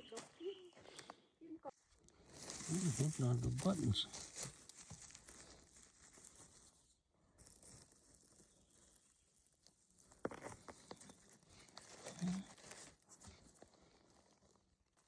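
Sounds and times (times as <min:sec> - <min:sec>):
sharp crackles: 0:02.2 - 0:06.4, 0:07.4 - 0:13.0
rustling in dry leaves: 0:02.2 - 0:14.6.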